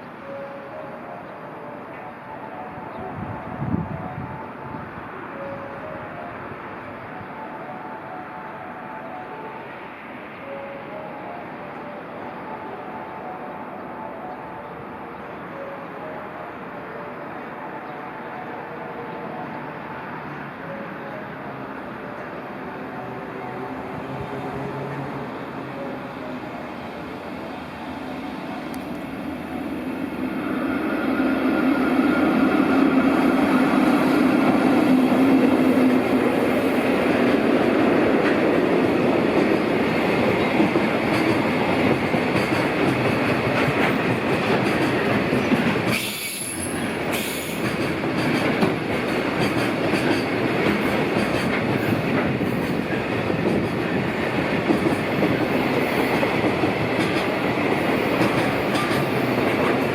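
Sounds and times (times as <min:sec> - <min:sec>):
freight train passing: 0:00.0 - 0:59.9
wheels clacking over rail joints: 0:38.1 - 0:59.9.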